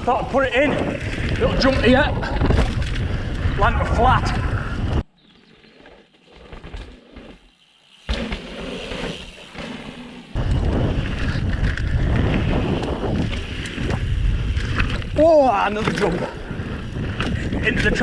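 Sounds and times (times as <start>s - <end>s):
wind buffeting microphone: 0.0s - 5.1s, 10.3s - 18.0s
bike tyres rolling on dirt: 0.0s - 18.0s.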